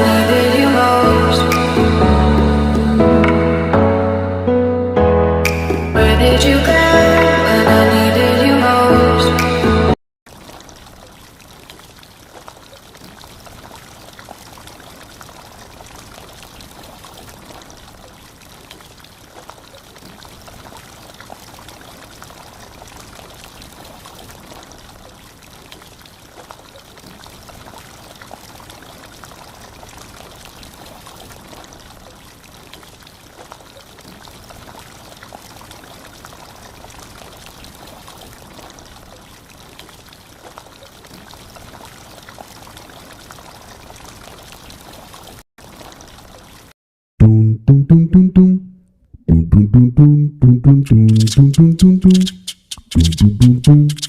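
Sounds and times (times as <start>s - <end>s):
water pouring from pump: 10.3s - 46.7s.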